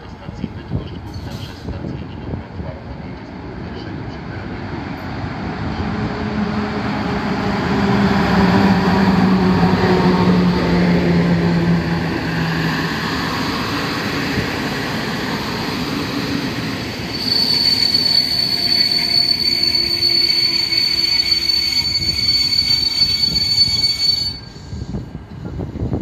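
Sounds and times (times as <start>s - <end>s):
train coaches rolling past: 0.0s - 26.0s
train brake squeal: 17.1s - 24.8s.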